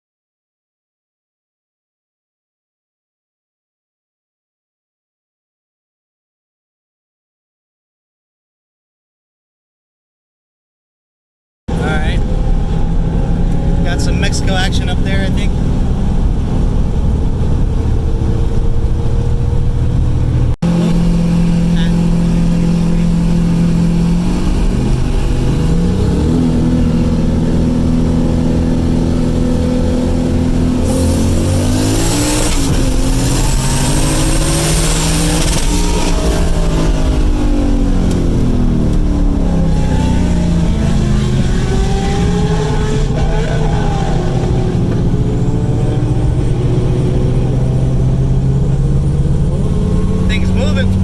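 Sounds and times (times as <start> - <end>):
car engines at full throttle: 11.7 - 51.0.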